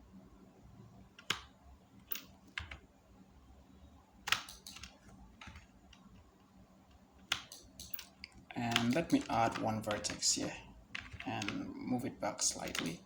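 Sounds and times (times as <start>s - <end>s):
keyboard keys clicking: 1.2s - 2.8s, 4.2s - 6.3s, 6.9s - 10.3s, 10.9s - 11.7s, 12.6s - 13.0s.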